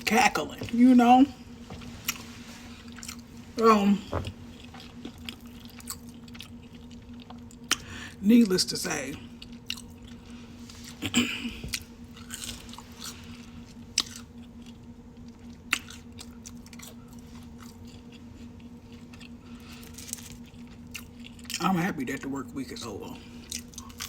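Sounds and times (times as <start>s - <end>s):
faint steady hum: 0.0s - 24.0s
person chewing food: 1.6s - 8.0s, 9.2s - 11.0s, 11.6s - 21.6s, 23.4s - 24.0s.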